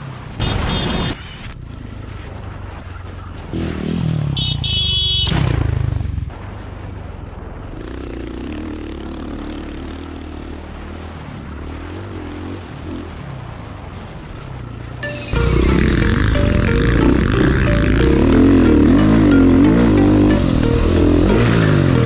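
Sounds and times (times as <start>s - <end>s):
dirt bike engines droning: 1.1s - 22.0s
dirt bike engine revving: 3.5s - 6.2s, 7.8s - 13.2s, 15.1s - 22.0s.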